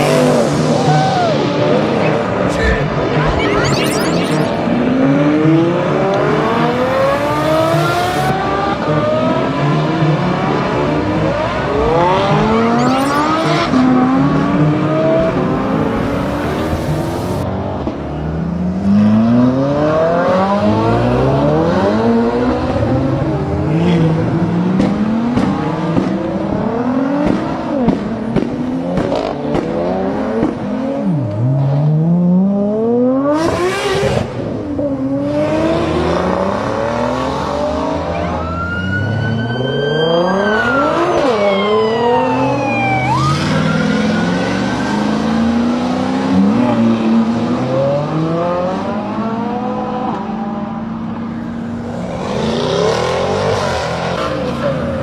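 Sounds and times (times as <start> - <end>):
sports car engines accelerating: 0.0 - 55.0
high whine: 2.3 - 8.4, 11.7 - 17.5.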